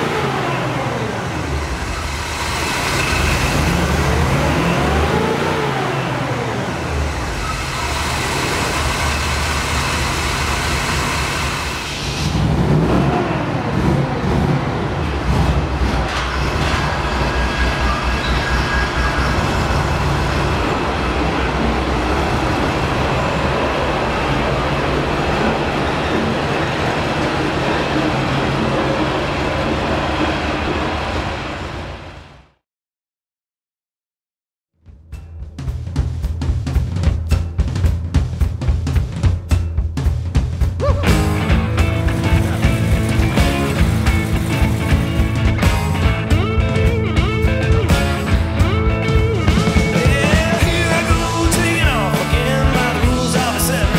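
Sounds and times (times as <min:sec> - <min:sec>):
vehicle engine running: 0:00.0 - 0:18.0, 0:35.5 - 0:53.9.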